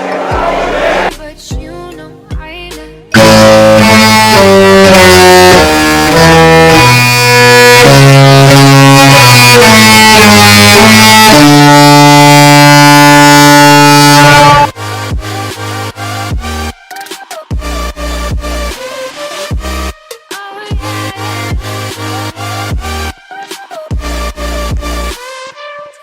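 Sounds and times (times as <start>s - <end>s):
musical ship horn playing tune: 3.2s - 14.8s.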